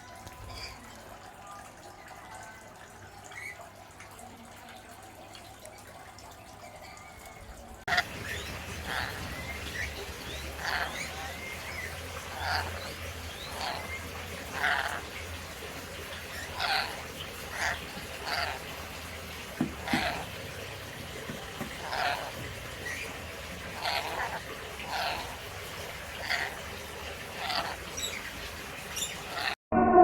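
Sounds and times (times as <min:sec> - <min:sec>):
parrot calling: 0:07.0 - 0:29.6.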